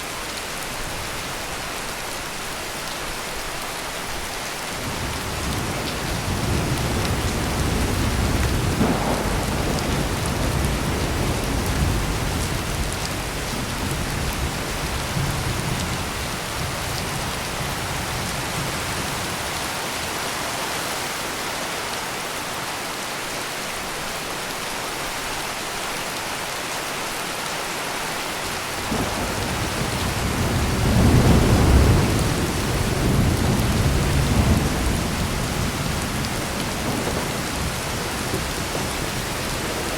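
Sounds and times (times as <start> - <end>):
heavy rain pouring: 0.0 - 39.9
thunder rumbling: 4.8 - 19.5, 28.8 - 39.9.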